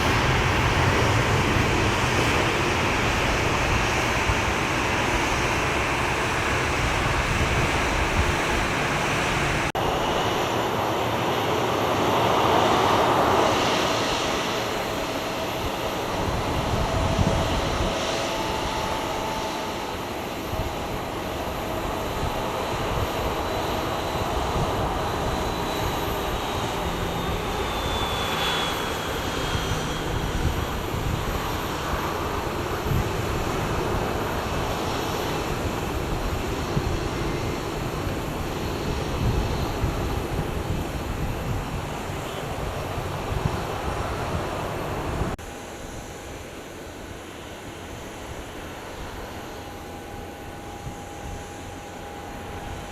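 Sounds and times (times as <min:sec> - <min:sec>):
jet engines running: 0:00.0 - 0:52.9
faint high whine: 0:14.6 - 0:52.9.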